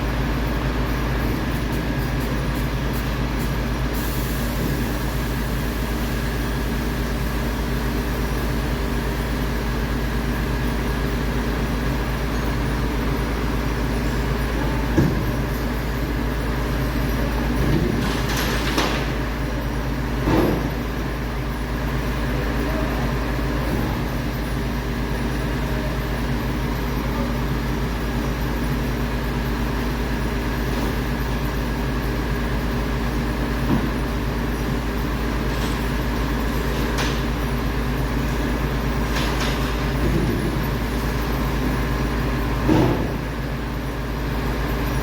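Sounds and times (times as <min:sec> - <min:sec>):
diesel truck engine running: 0:00.0 - 0:45.0
knocks and clanks: 0:14.8 - 0:15.7, 0:17.5 - 0:19.3, 0:20.2 - 0:20.8, 0:39.0 - 0:40.8, 0:42.6 - 0:43.4.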